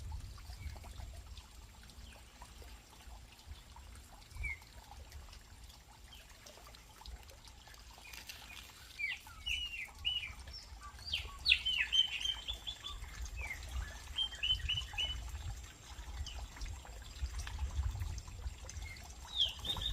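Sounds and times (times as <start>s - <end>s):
small birds chirping: 7.5s - 17.0s, 18.7s - 19.9s.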